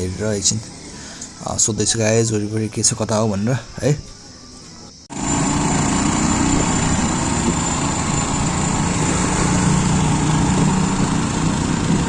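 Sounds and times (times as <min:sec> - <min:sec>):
thin high whine: 0:00.0 - 0:12.0
small motorcycle engine running: 0:03.9 - 0:12.0.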